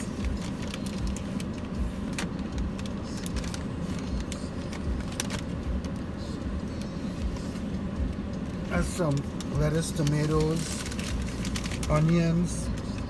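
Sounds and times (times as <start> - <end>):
paper wrapper crinkling: 0.0 - 5.6, 8.9 - 13.0
car cabin hum: 0.0 - 13.0.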